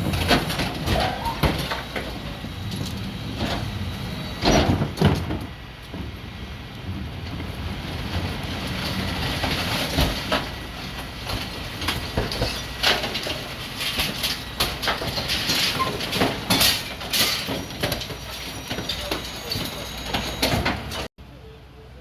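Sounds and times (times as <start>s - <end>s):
metal rattling clatter: 7.2s - 21.1s.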